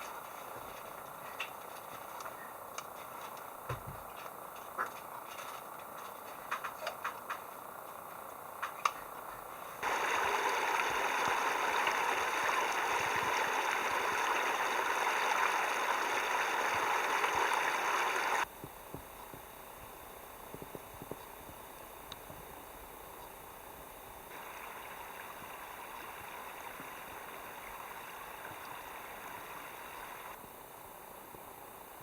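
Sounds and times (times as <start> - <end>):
running water rushing: 9.8 - 18.4, 24.3 - 30.4
faint clicks: 25.2 - 30.4.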